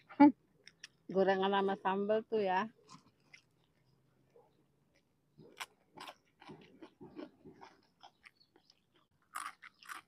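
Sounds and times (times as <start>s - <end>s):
chewing crisp fried snacks: 4.9s - 10.0s.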